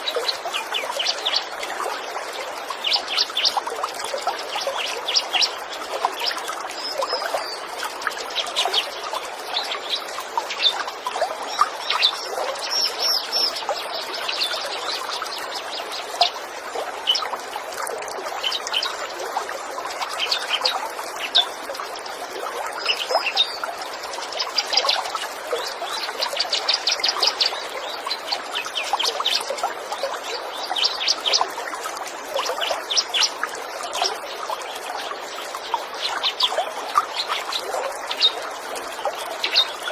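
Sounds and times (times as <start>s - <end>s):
trickling stream: 0.0s - 39.9s
small birds chirping: 2.5s - 16.4s, 22.7s - 33.4s, 34.0s - 39.9s.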